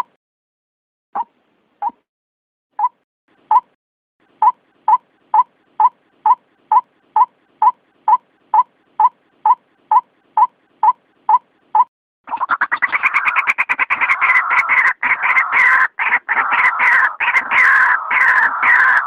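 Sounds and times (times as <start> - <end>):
bird calling repeated notes: 2.8 - 13.4.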